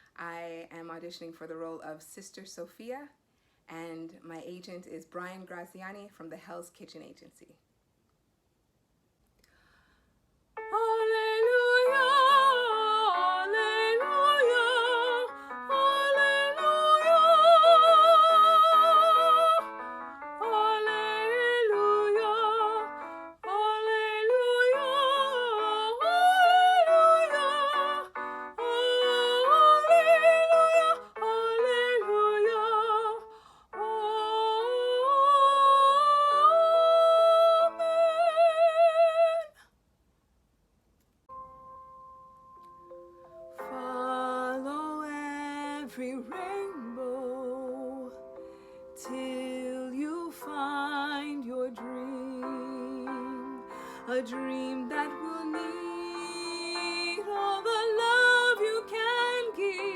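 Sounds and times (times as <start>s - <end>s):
woman singing operatically: 10.6s - 39.6s, 43.6s - 48.2s, 49.0s - 59.9s
instrumental accompaniment: 24.8s - 31.4s, 41.3s - 44.1s.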